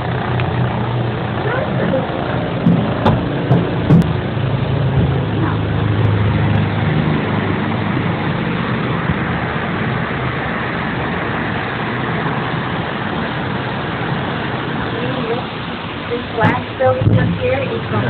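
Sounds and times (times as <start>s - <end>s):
road and engine noise in a car: 0.0s - 18.0s
short knocks: 2.6s - 4.2s.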